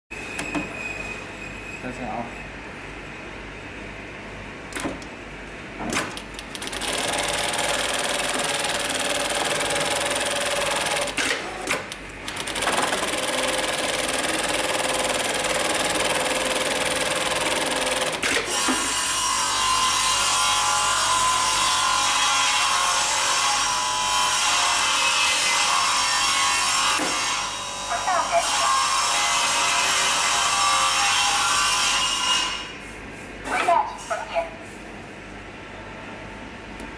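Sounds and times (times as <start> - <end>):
sewing machine stitching: 6.6 - 18.4.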